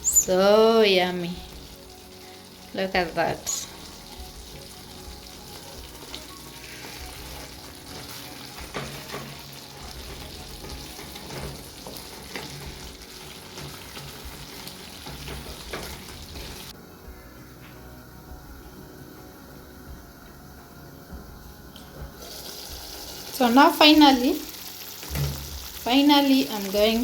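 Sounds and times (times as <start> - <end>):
sauce sizzling in a pan: 0.0 - 16.8, 22.1 - 27.0
spoon stirring in a pot: 6.0 - 16.7.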